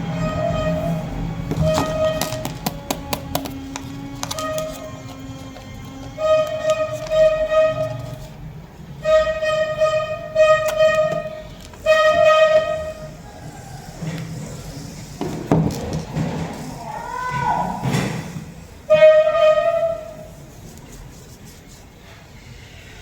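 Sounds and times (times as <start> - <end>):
flute-like melody: 0.1 - 13.4.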